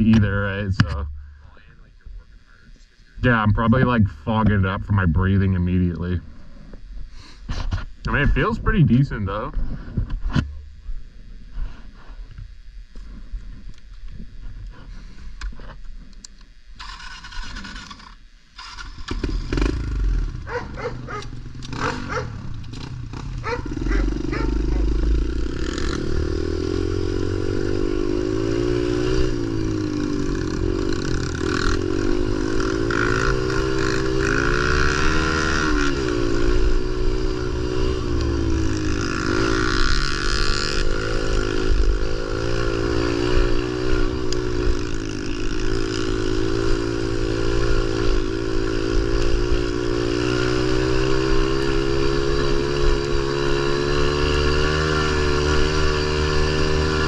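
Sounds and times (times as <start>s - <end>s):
motorbike engine revving: 0.0s - 1.6s, 16.8s - 57.0s.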